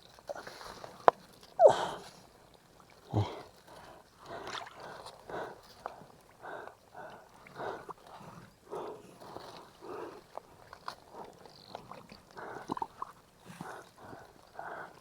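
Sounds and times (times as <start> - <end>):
animal calling: 1.6 - 2.0.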